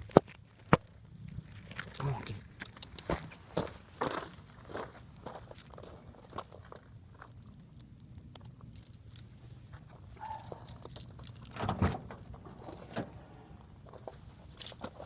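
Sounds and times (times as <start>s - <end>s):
keys jangling: 8.4s - 9.5s, 10.2s - 11.9s, 13.9s - 15.0s.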